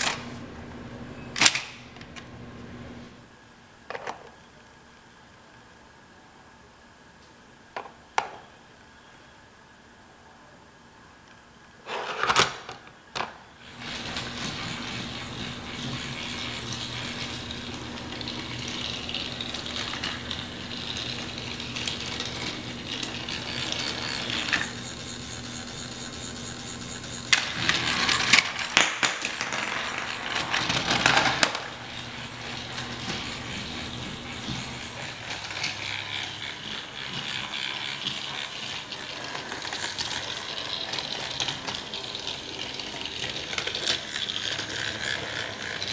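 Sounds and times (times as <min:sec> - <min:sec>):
toy train motor whirring: 0:13.6 - 0:45.9.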